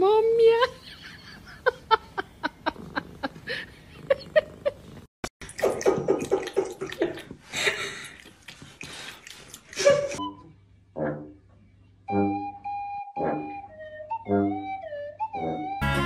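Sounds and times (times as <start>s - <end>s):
faucet water running into sink: 5.4s - 7.4s.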